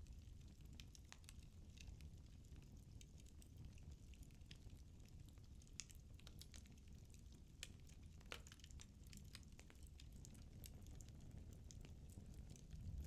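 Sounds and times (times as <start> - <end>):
low rumble of flames: 0.0 - 13.0
firewood crackling and popping: 3.2 - 13.0.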